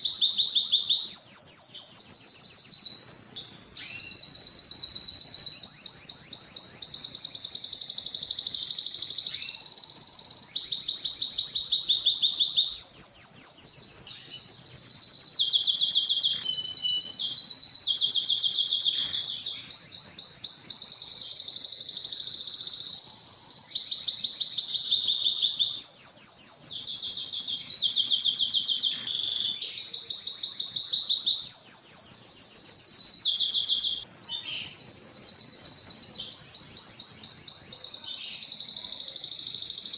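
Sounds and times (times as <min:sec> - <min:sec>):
canary singing rapid trills: 0:03.7 - 0:39.9.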